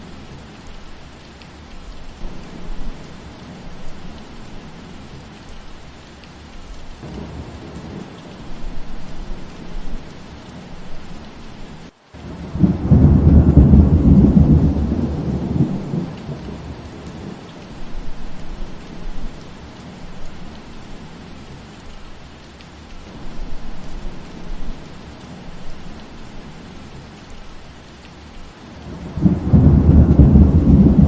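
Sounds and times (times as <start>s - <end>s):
steady rain falling: 0.0s - 31.0s
faint thunder rumbles: 2.1s - 5.6s, 7.0s - 21.6s, 28.4s - 31.0s
loud low thunder roll: 12.3s - 16.7s, 28.9s - 31.0s.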